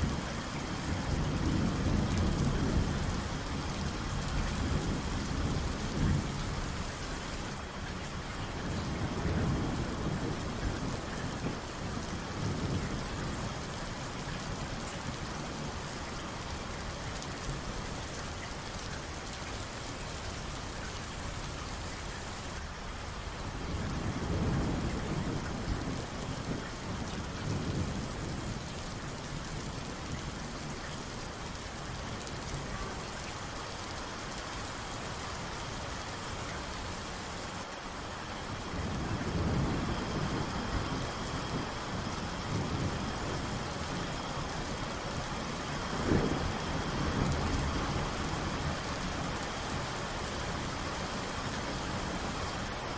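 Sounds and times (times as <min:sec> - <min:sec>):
distant thunder rumbling: 0:00.0 - 0:07.5, 0:08.5 - 0:16.6, 0:38.4 - 0:52.6
heavy rain: 0:00.0 - 0:52.9.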